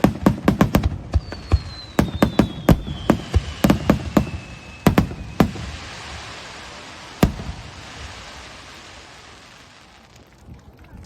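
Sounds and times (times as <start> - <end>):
fireworks bangs: 0.0 - 10.2
falling firework whistle: 1.1 - 9.4.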